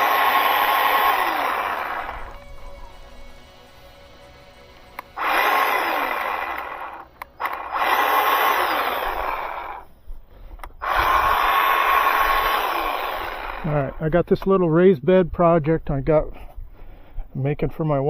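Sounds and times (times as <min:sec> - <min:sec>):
electric chainsaw running: 0:00.0 - 0:09.9, 0:10.7 - 0:14.0.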